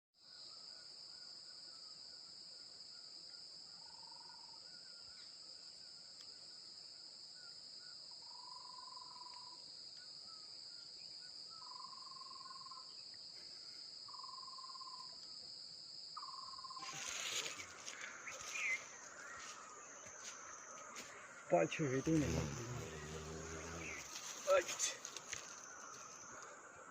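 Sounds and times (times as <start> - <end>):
high-pitched insect drone: 16.2 - 26.9
rustling: 16.8 - 21.2, 22.0 - 26.3.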